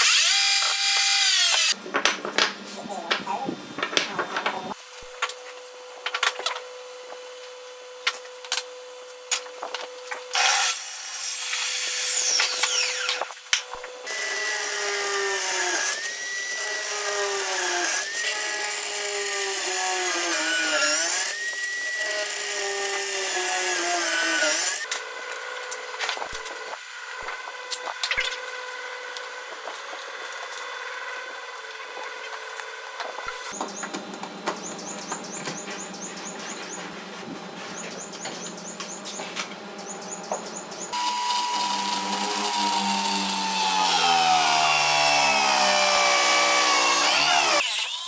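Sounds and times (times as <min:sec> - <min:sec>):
power tool cutting wood: 0:00.0 - 0:01.8, 0:10.1 - 0:33.6, 0:40.9 - 0:48.0.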